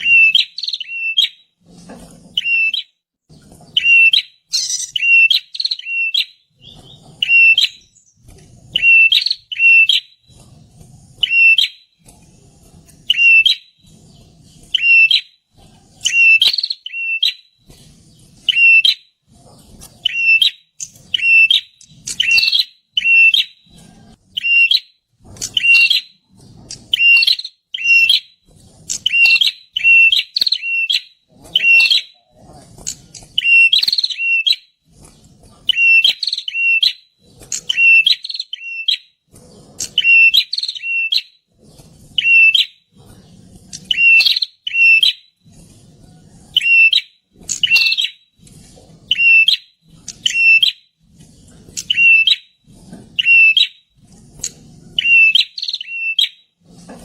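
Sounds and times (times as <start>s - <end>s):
bird chirping sharply: 0.0s - 1.4s, 3.7s - 10.3s, 20.0s - 23.6s.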